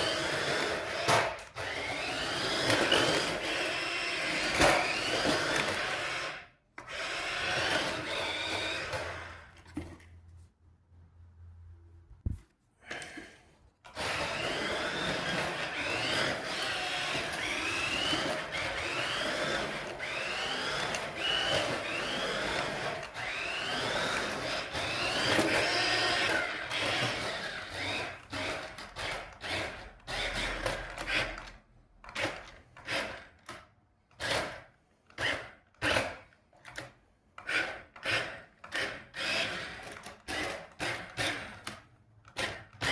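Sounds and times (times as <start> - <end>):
small electric motor whining: 0.0 - 9.6, 13.9 - 31.5.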